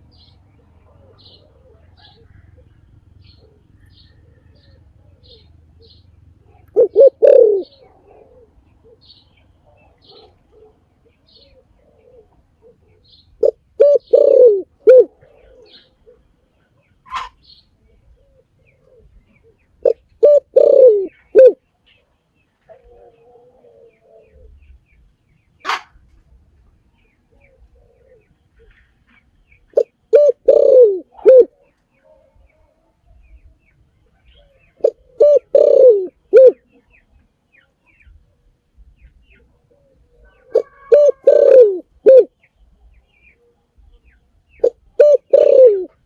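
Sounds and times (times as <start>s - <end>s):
dove cooing: 0.0s - 21.6s, 22.6s - 24.8s, 27.3s - 28.9s, 29.7s - 33.4s, 34.1s - 37.0s, 39.2s - 42.3s, 43.2s - 46.0s
small birds chirping: 0.0s - 25.9s, 26.7s - 46.0s.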